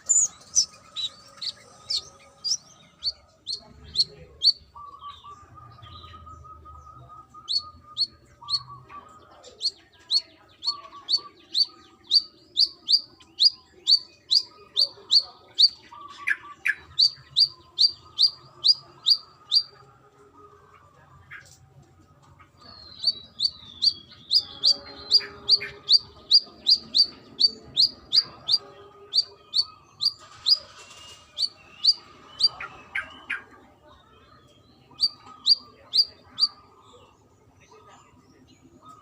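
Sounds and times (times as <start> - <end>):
bird chip notes: 23.0 - 30.6.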